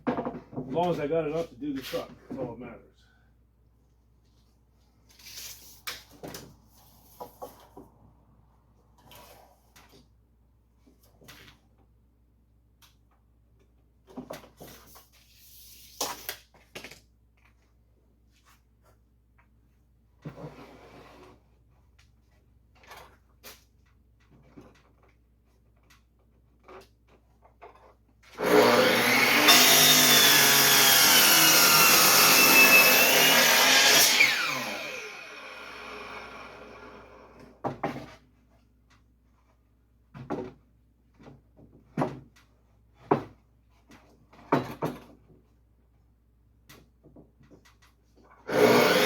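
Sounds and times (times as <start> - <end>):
electric saw cutting wood: 28.4 - 37.4, 48.5 - 49.0.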